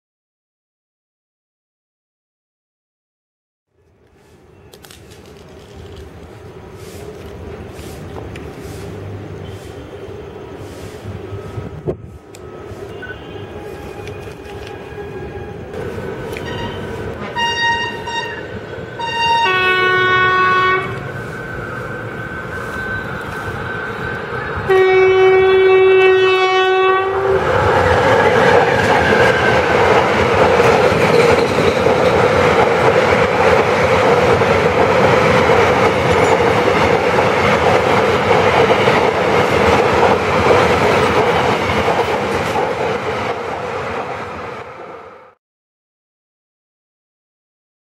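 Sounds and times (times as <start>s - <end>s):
train rumbling over rails: 4.0s - 45.4s
locomotive horn blasts: 12.9s - 14.2s, 16.4s - 21.1s, 24.7s - 27.4s.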